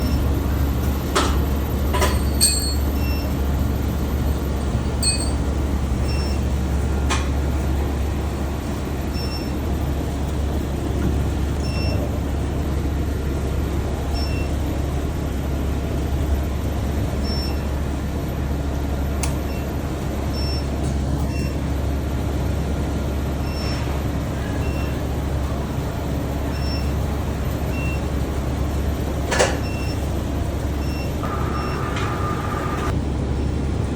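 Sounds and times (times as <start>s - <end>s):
furnace humming: 24.0s - 33.1s.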